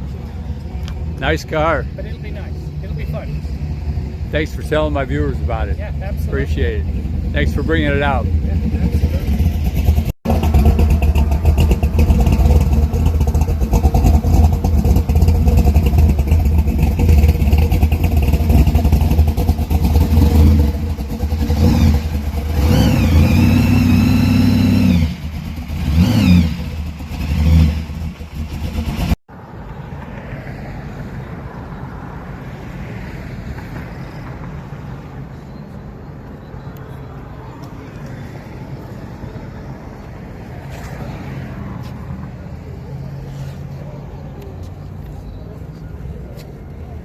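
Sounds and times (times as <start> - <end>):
car engine revving roughly: 7.3 - 29.2.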